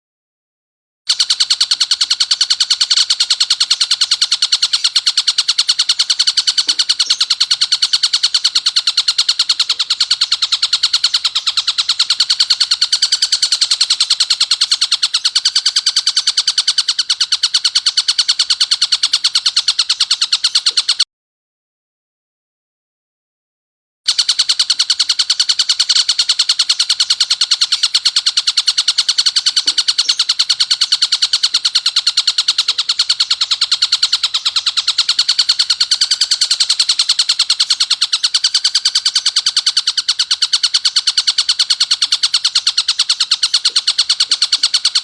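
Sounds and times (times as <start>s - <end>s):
kingfisher harsh rapid call: 1.1s - 21.0s, 24.1s - 45.0s.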